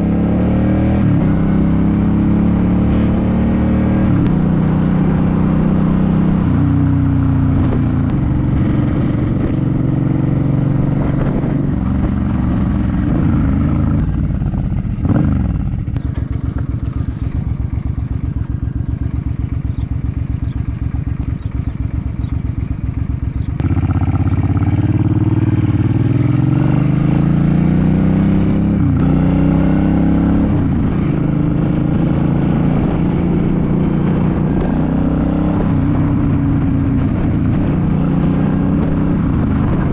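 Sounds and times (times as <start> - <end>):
motorcycle engine through gears: 0.0 - 39.9
motorcycle engine idling: 10.8 - 26.3.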